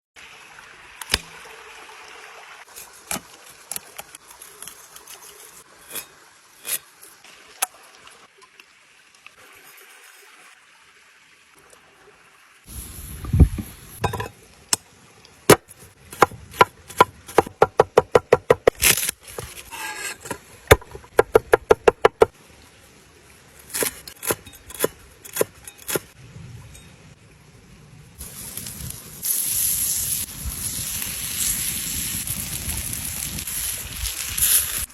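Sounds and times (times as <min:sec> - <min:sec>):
knife chopping on wooden board: 0:16.2 - 0:19.0, 0:20.7 - 0:22.3.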